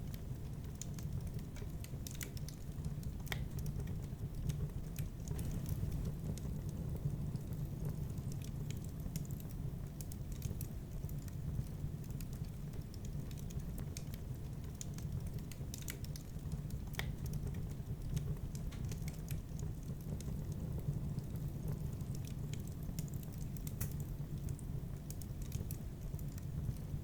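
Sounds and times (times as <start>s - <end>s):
fire crackling in a fireplace: 0.0s - 27.0s.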